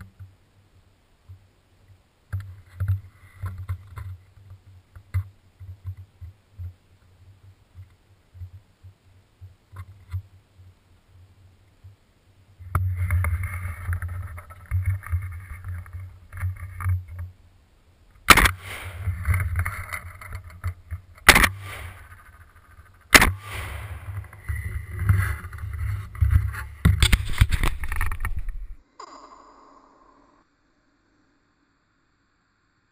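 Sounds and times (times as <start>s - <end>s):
low rumble of handling and wind: 0.0s - 28.9s
shotgun shots: 18.3s - 19.3s, 21.2s - 22.2s, 23.1s - 24.4s.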